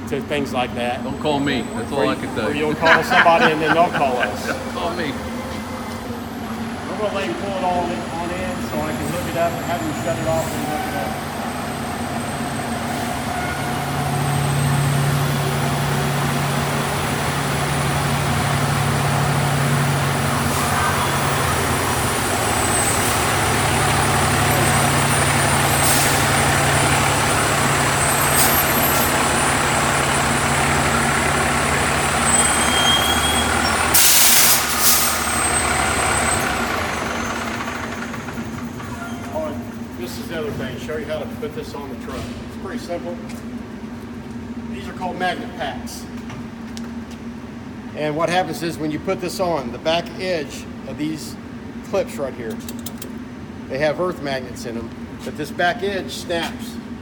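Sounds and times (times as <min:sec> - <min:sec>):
diesel truck engine running: 0:00.0 - 0:44.7
air brakes hissing: 0:03.4 - 0:15.4, 0:17.7 - 0:39.6.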